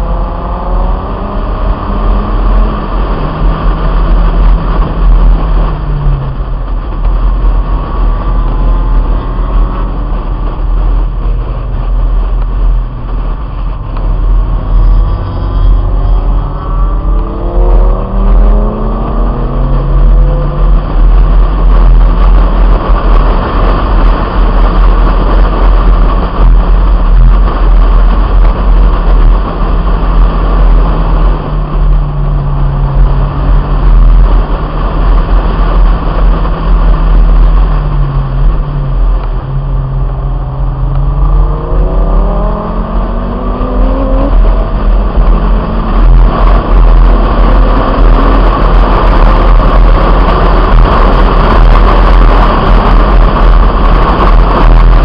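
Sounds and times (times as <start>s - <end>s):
car engine revving: 0.0s - 55.0s
heavy wind rushing: 0.0s - 55.0s.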